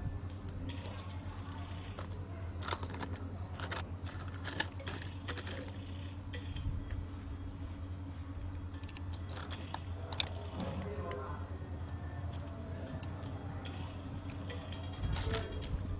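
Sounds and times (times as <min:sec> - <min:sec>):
steady low hum: 0:00.0 - 0:15.9
plastic toy trucks clacking: 0:00.7 - 0:06.5, 0:08.8 - 0:11.2, 0:12.3 - 0:15.9
toy scraping: 0:00.7 - 0:06.6, 0:08.8 - 0:11.3.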